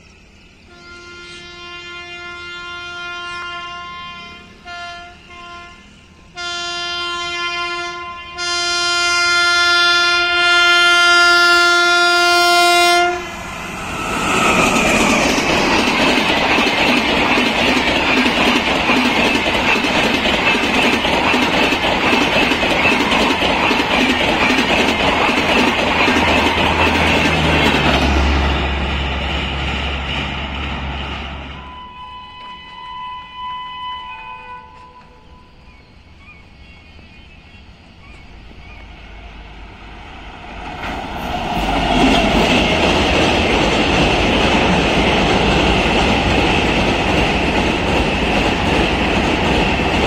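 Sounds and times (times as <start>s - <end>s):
passing train rumble: 0.0s - 50.0s
locomotive horn blasts: 0.7s - 13.4s, 31.5s - 35.5s
wheels clacking on rails: 13.2s - 31.6s, 40.2s - 50.0s.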